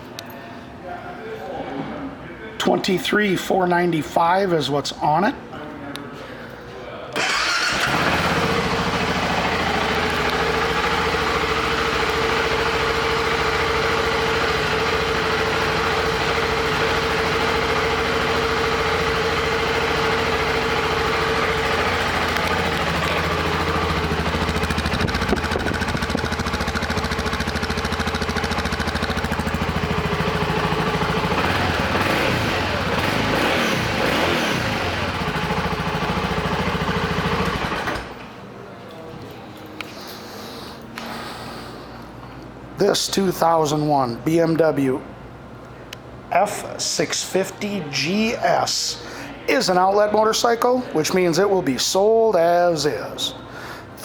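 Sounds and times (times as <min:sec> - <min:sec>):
motorcycle engine idling: 0:07.2 - 0:37.9.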